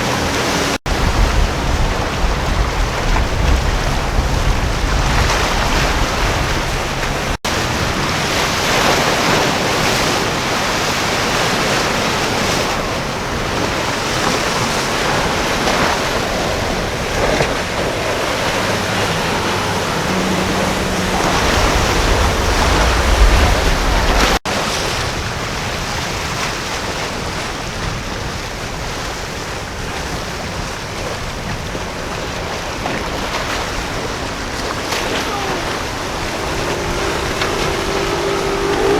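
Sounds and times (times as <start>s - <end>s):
waves and surf rushing: 0.0s - 38.9s
wind buffeting microphone: 0.0s - 38.9s
low rumble: 17.8s - 24.4s.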